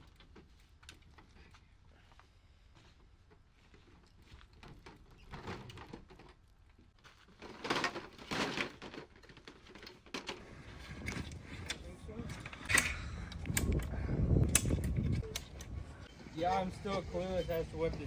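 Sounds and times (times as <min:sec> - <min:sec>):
equipment knocks and rustles: 0:07.2 - 0:10.4.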